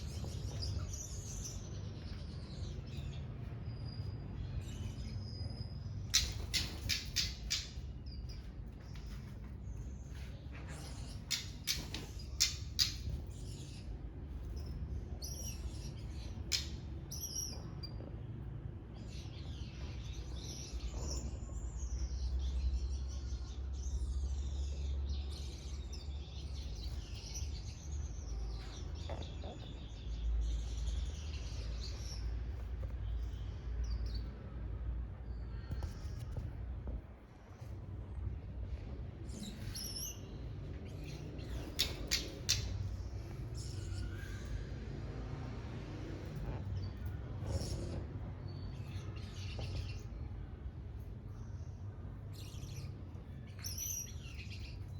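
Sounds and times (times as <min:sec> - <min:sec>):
songbirds chirping and calling: 0:00.0 - 0:54.9.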